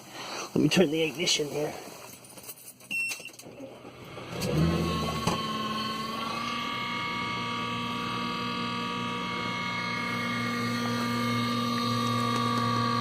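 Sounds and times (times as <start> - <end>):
steady high whine: 3.7 - 13.0
engine starting rumble: 3.8 - 8.0
engine running steadily: 3.8 - 13.0.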